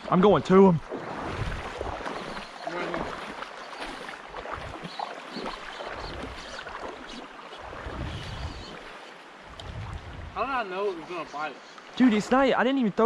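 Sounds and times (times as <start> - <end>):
river water splashing and rushing: 0.0 - 13.0
wind rumbling on microphone: 0.7 - 2.4, 5.9 - 10.5.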